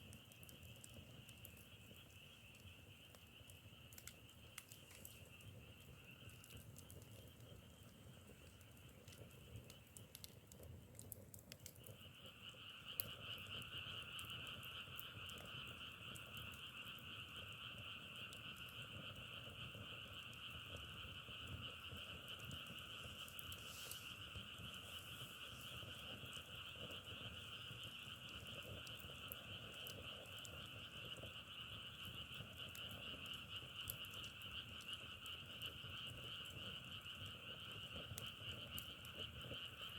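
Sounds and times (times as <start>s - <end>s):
wood fire crackling: 0.0s - 39.9s
frog chorus calling: 21.1s - 39.9s.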